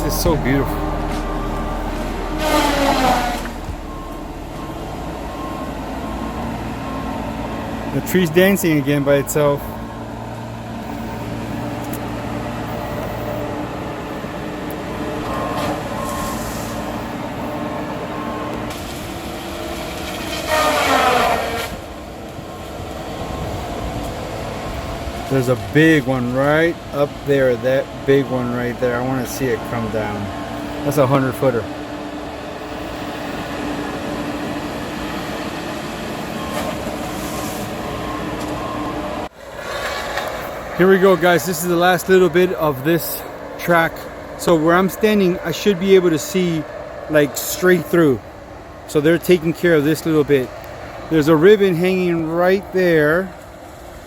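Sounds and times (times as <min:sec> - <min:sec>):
machinery engine running: 0:00.0 - 0:39.3.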